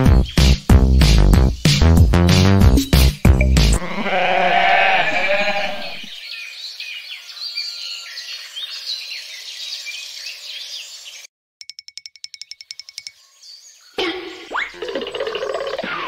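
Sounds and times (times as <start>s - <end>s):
sheep bleating: 3.8s - 6.1s.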